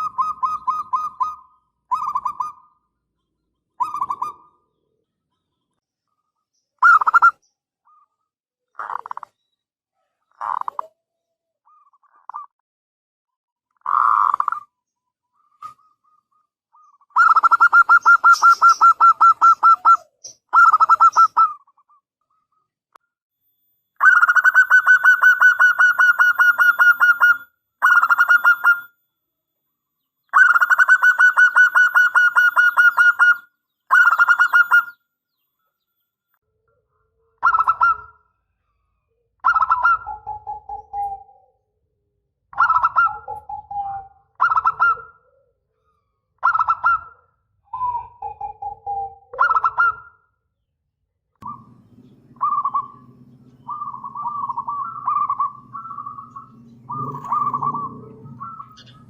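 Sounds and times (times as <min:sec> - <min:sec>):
dove cooing: 0:03.8 - 0:04.7, 0:10.4 - 0:11.0, 0:16.8 - 0:21.9, 0:24.0 - 0:28.9, 0:30.4 - 0:35.0, 0:37.3 - 0:38.2, 0:39.4 - 0:41.6, 0:42.6 - 0:50.0, 0:51.4 - 0:59.0.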